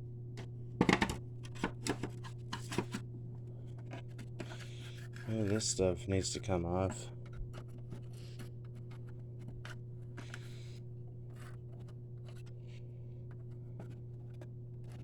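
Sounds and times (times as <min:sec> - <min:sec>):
steady low hum: 0:00.0 - 0:15.0
scratching and clicking of scraping grime: 0:03.6 - 0:05.8, 0:07.2 - 0:15.0.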